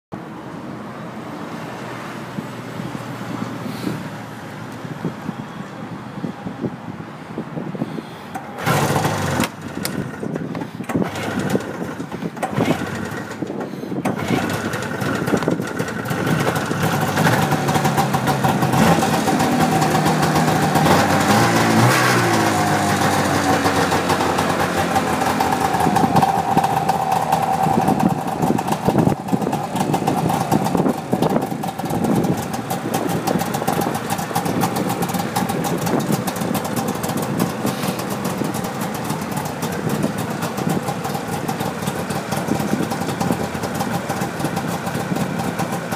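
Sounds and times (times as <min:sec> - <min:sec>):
snowmobile engine starting and revving: 0:08.6 - 0:45.9.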